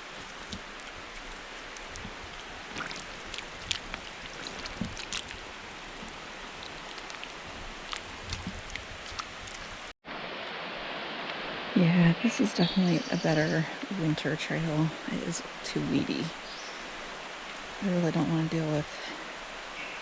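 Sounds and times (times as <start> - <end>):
barefoot footsteps on sandy trail: 0.0 - 9.9.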